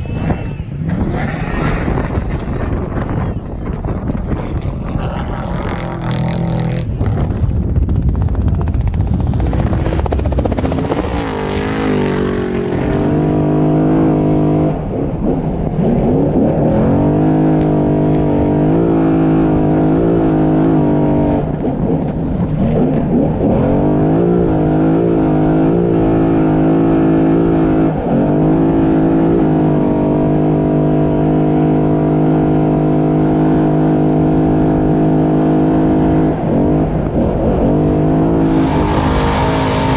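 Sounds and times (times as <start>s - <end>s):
truck engine revving high: 4.3s - 7.4s, 8.8s - 22.0s, 22.6s - 39.9s
loud rushing noise: 38.3s - 39.9s.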